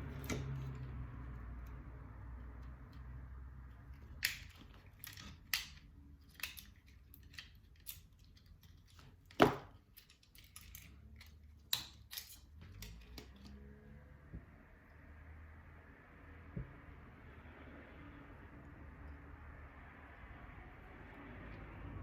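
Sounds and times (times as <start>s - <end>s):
small parts and tools handled: 3.7s - 13.8s.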